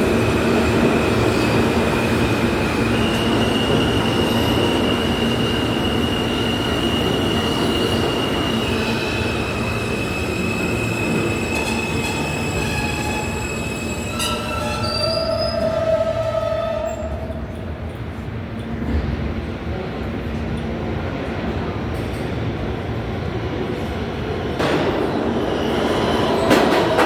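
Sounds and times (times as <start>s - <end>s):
subway wheels squealing: 0.0s - 18.9s, 24.4s - 27.0s
rumble of train cars: 0.0s - 27.0s.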